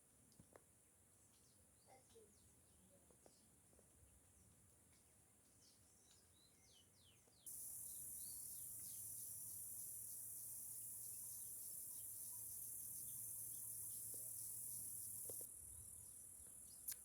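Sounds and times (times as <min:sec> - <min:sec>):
faint bird chirps: 0:05.5 - 0:17.0
high-pitched insect drone: 0:07.5 - 0:16.4.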